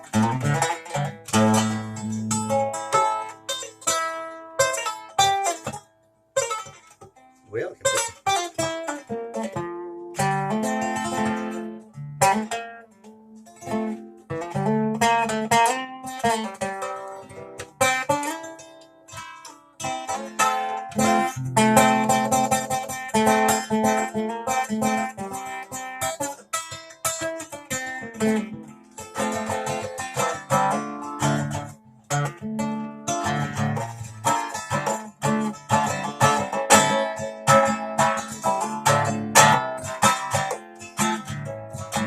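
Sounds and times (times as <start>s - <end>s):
plucked string instrument: 0.0s - 42.0s.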